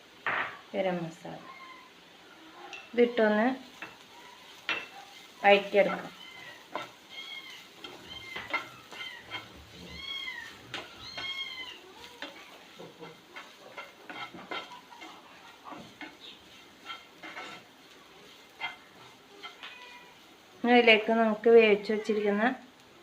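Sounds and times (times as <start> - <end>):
light sizzling: 0.0 - 23.0
spatula scraping a pan: 2.7 - 21.1
cat meowing: 6.1 - 12.6, 19.4 - 20.2.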